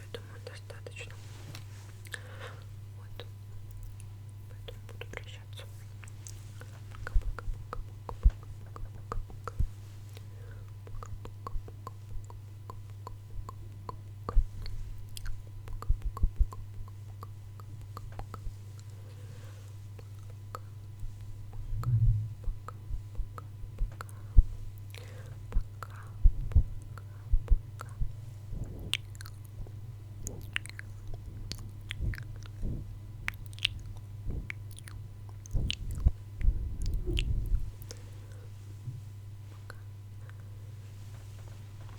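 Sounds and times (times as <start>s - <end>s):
steady low hum: 0.0s - 41.9s
wet mouth clicks and smacks: 6.0s - 19.0s, 20.0s - 38.0s.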